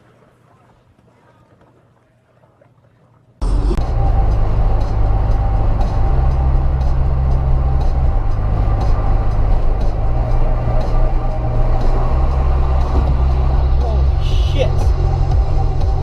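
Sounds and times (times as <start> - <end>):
steady humming tone: 3.4 - 16.0
vehicle engine rumble: 3.4 - 16.0.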